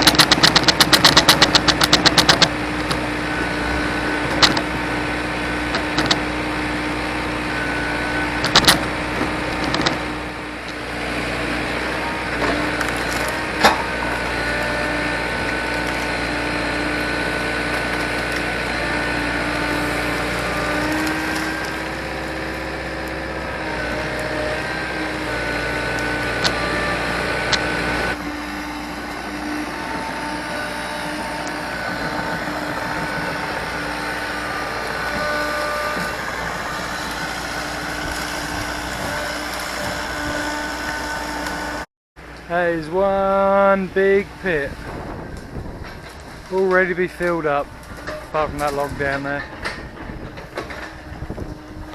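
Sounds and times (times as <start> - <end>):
wood snapping: 0.0 - 3.0, 4.3 - 4.7, 5.7 - 6.2, 8.4 - 8.9, 9.5 - 10.0, 12.4 - 13.8, 15.4 - 16.3, 20.0 - 23.2, 25.8 - 26.8, 27.4 - 27.8
excavator engine running: 0.0 - 51.9.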